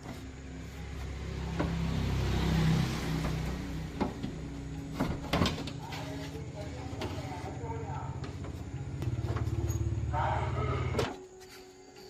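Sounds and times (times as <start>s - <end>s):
engine revving: 0.2s - 4.9s, 8.0s - 11.0s.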